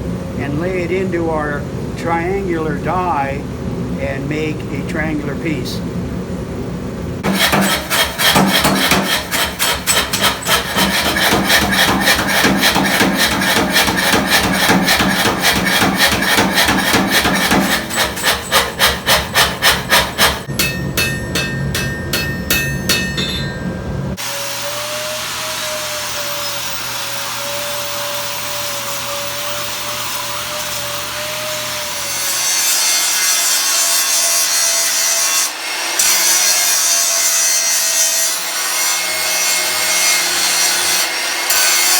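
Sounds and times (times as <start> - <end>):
power hammer striking steel: 7.2 - 24.8
grinder on steel: 7.2 - 41.9.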